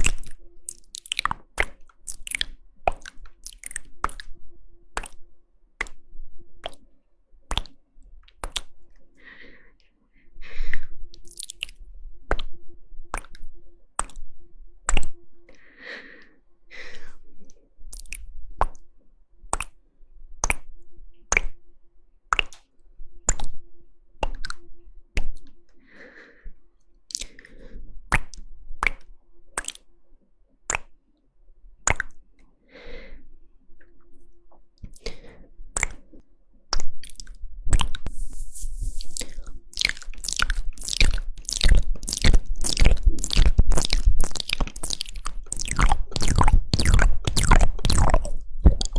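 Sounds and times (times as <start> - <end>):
tongue and lip clicks: 0.0 - 4.4, 5.0 - 5.2, 6.6 - 6.9, 7.5 - 9.0, 10.7 - 14.3, 14.9 - 15.6, 17.9 - 18.9, 19.5 - 19.8, 20.4 - 21.6, 22.3 - 23.6, 24.2 - 24.6, 25.2 - 25.6, 27.1 - 29.9, 30.7 - 31.0, 31.9 - 32.2, 34.8 - 48.9.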